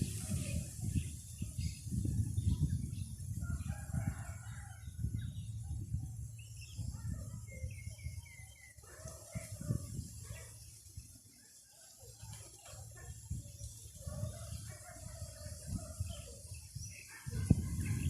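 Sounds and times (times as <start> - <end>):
wind buffeting microphone: 0.0 - 11.4, 12.1 - 18.0.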